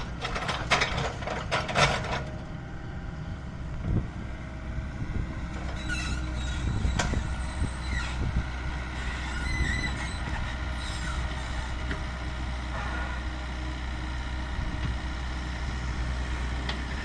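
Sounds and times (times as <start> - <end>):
excavator diesel engine running: 0.0 - 17.0
high metallic squeals: 5.7 - 8.3, 8.9 - 11.7.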